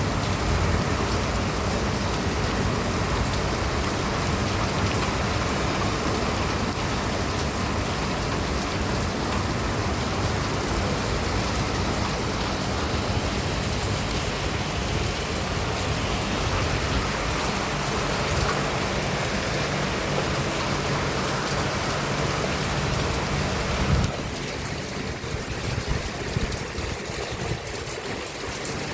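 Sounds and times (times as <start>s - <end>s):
heavy rain falling: 0.0s - 28.9s.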